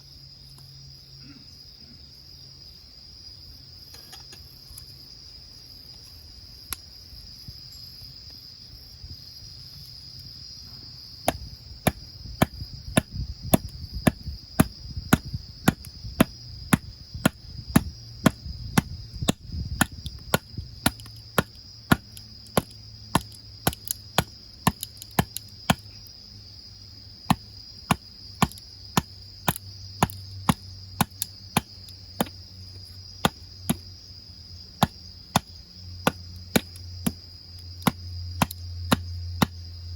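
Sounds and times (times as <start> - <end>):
crickets chirring: 0.0 - 39.9
sharp chopping strikes: 11.2 - 26.0, 27.3 - 32.4, 33.2 - 33.9, 34.8 - 37.2, 37.8 - 39.6.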